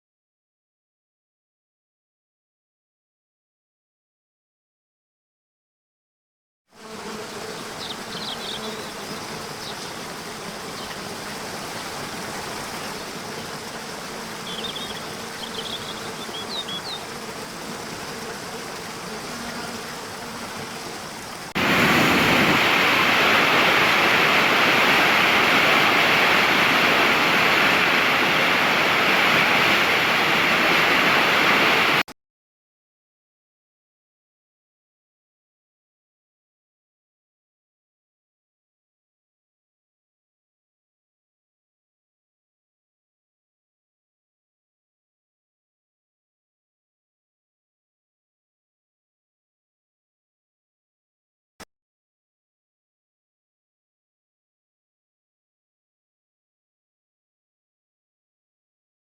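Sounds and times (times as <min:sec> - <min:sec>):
water flowing: 0:07.5 - 0:32.0
loud rushing water: 0:07.6 - 0:19.0, 0:20.0 - 0:32.0.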